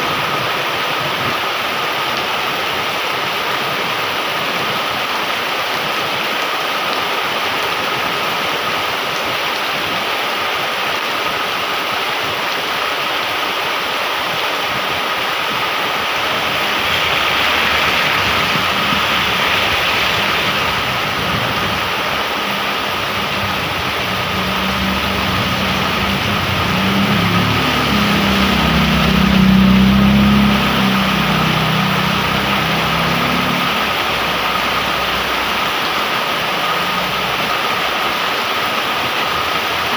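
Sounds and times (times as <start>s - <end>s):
heavy rain pouring: 0.0s - 39.9s
vehicle engine: 14.9s - 39.9s.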